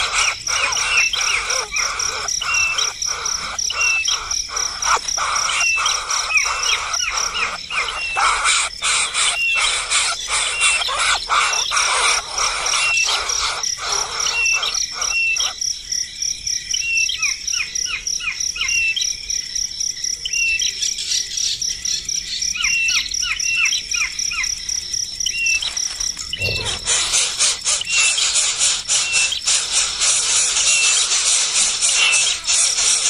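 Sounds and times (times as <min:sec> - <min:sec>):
small birds chirping: 0:00.0 - 0:15.8, 0:20.2 - 0:33.0
high-pitched insect trill: 0:00.0 - 0:20.2, 0:21.9 - 0:33.0
scratchy noise: 0:26.4 - 0:29.2.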